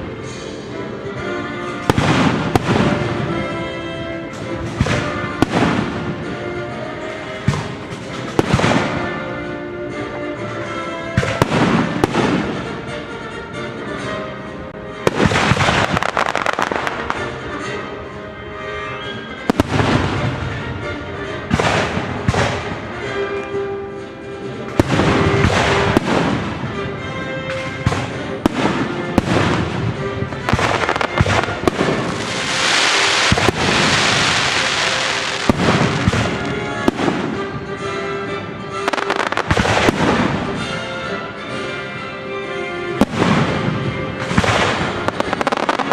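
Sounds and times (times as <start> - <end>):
orchestral music: 0.0 - 45.9
fireworks bangs: 1.8 - 3.6, 4.3 - 6.5, 7.3 - 9.2, 11.2 - 12.9, 15.1 - 17.8, 19.4 - 20.8, 21.5 - 23.1, 24.7 - 37.9, 38.7 - 41.0, 43.0 - 45.9
fireworks hiss: 30.8 - 36.3.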